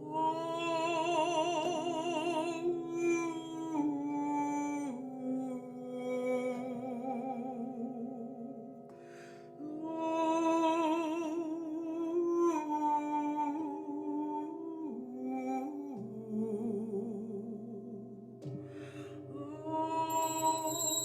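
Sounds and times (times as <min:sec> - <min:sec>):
person humming and singing wordlessly: 0:09.6 - 0:18.1.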